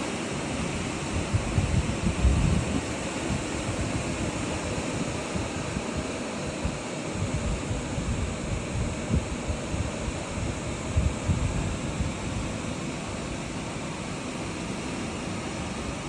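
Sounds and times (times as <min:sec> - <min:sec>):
strong wind blowing: 0:00.7 - 0:13.4
wind buffeting microphone: 0:01.0 - 0:12.8.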